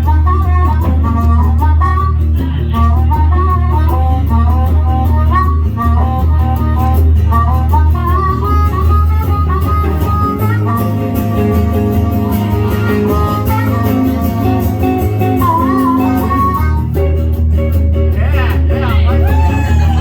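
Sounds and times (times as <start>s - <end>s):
band playing guitar bass and drums: 0.0s - 20.0s
harmonica melody: 0.0s - 20.0s.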